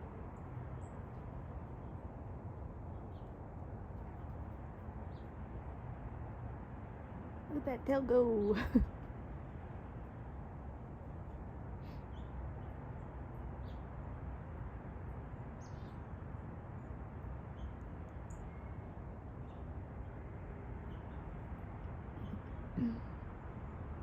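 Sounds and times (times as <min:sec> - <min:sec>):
outdoor background noise: 0:00.0 - 0:24.0
faint bird chirps: 0:22.2 - 0:23.8.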